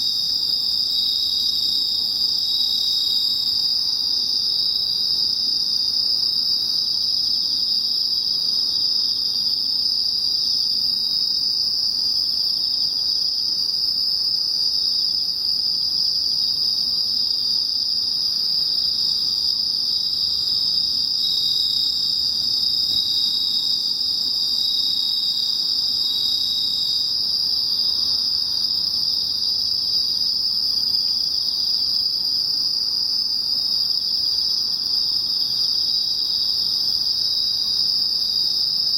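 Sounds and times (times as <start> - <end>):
crickets trilling: 0.0 - 38.9
lower cricket singing: 0.0 - 38.9.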